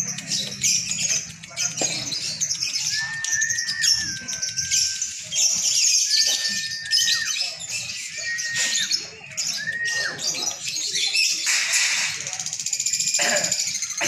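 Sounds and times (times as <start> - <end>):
lovebirds chattering trills: 0.0 - 14.0.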